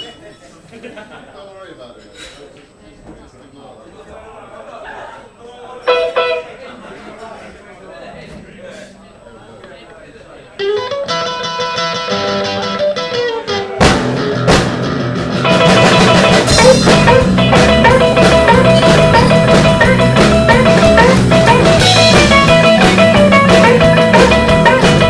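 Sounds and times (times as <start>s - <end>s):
live rock band playing: 5.9s - 6.6s, 10.6s - 25.0s.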